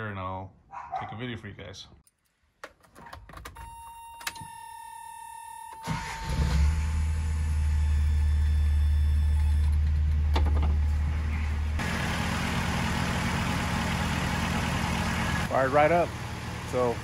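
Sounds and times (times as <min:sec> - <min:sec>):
car engine starting and idling: 0:05.7 - 0:17.0.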